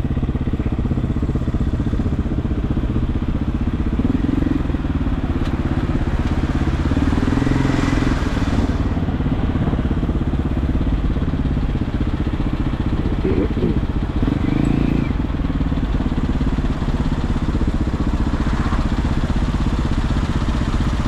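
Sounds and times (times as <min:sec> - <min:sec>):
motorcycle engine running: 0:00.0 - 0:21.0
hissing noise: 0:07.2 - 0:10.0.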